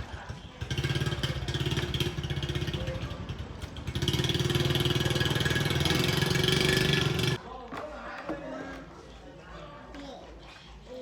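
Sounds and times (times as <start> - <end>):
engine running fast: 0.0 - 7.4.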